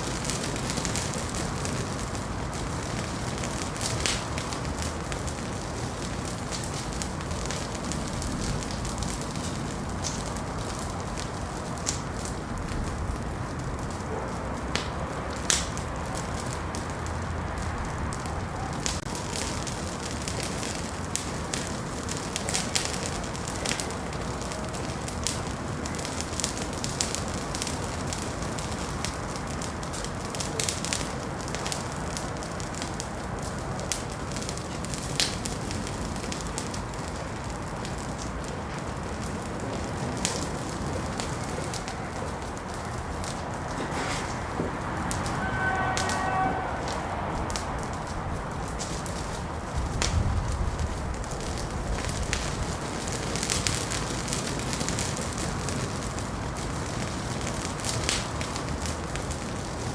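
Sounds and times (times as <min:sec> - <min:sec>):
fire crackles and pops: 0:00.0 - 0:59.9
wood fire hissing: 0:00.0 - 0:59.9.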